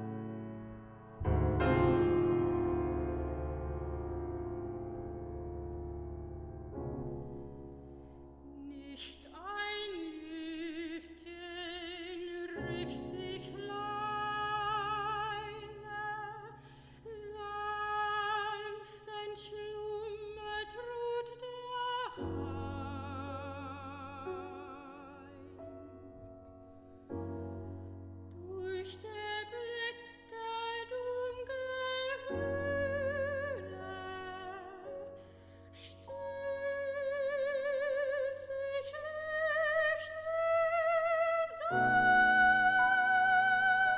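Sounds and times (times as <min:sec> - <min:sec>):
piano accompaniment: 0:00.0 - 0:43.9
soprano singing with vibrato: 0:08.5 - 0:26.1, 0:28.4 - 0:35.1, 0:35.8 - 0:43.9.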